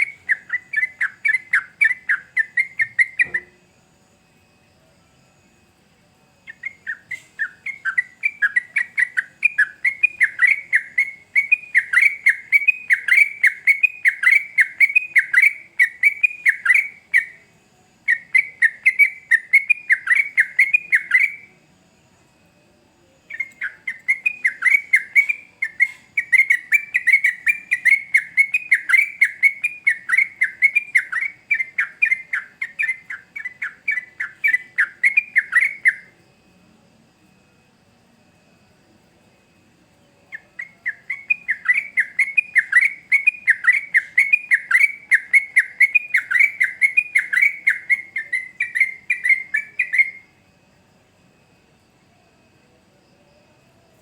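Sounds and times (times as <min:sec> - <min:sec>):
bulbul chattering song: 0:00.0 - 0:03.6, 0:06.4 - 0:21.5, 0:23.3 - 0:36.1, 0:40.3 - 0:50.4.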